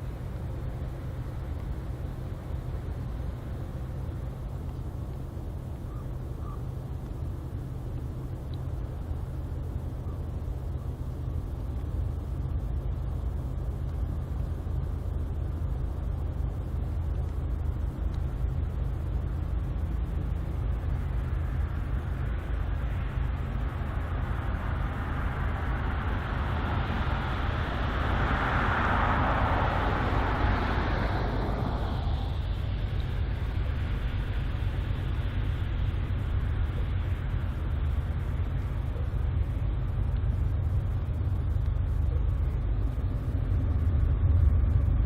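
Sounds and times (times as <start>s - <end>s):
low rumble: 0.0s - 45.0s
vehicle passing: 24.9s - 34.2s.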